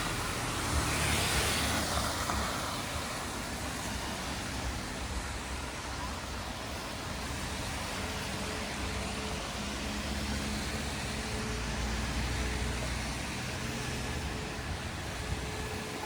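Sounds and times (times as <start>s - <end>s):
street noise hiss: 0.0s - 16.0s.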